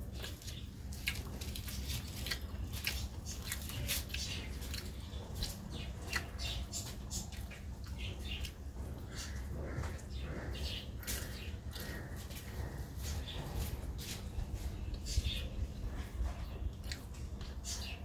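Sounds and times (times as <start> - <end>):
person chewing food: 0.0 - 15.1, 16.0 - 17.6
steady low hum: 0.0 - 18.0.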